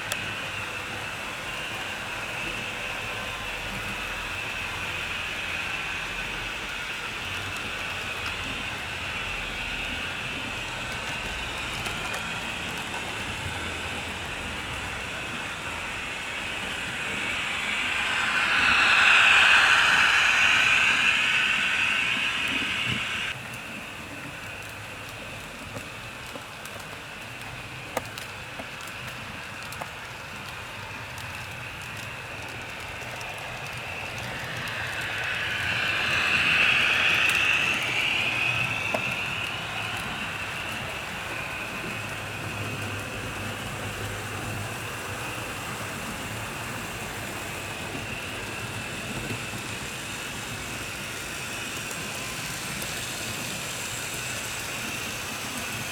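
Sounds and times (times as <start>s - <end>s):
model train whirring on track: 0.0s - 55.9s.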